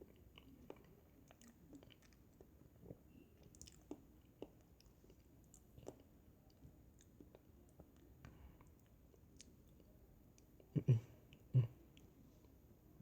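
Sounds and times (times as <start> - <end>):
person chewing: 0.0 - 10.7.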